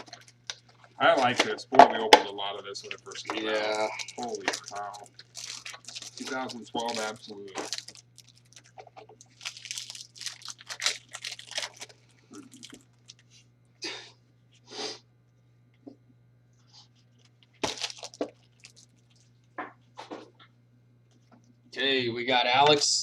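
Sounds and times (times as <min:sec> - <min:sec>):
wrappers crinkling and tearing: 0:00.0 - 0:01.4, 0:02.7 - 0:13.4, 0:16.9 - 0:19.5.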